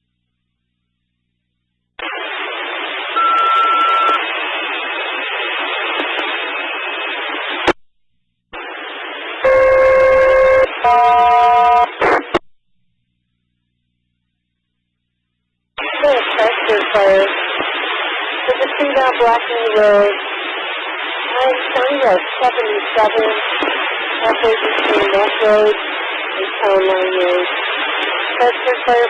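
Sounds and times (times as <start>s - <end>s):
radio channel hiss: 2.0s - 7.8s, 8.5s - 12.4s, 15.8s - 29.0s
short steady beep: 3.2s - 4.2s.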